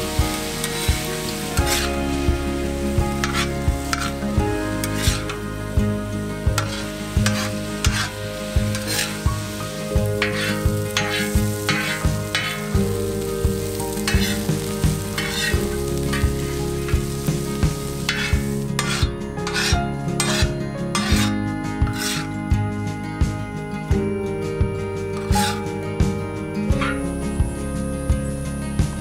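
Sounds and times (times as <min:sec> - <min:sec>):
food sizzling in a pan: 0:00.0 - 0:22.4, 0:25.2 - 0:29.0
background music with steady beat: 0:00.0 - 0:29.0
metal spatula scraping steel: 0:00.6 - 0:01.0, 0:01.6 - 0:02.0, 0:03.2 - 0:04.2, 0:04.8 - 0:05.4, 0:06.6 - 0:12.7, 0:14.0 - 0:17.1, 0:18.0 - 0:22.3, 0:25.2 - 0:25.7.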